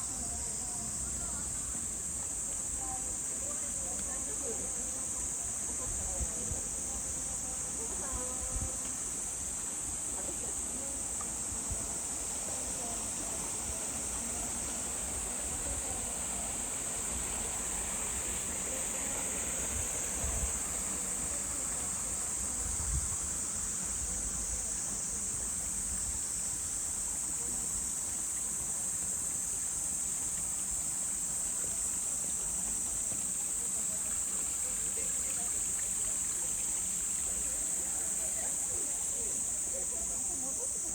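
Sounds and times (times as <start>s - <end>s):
insects droning: 0.0s - 40.9s
stream water flowing: 8.8s - 40.9s.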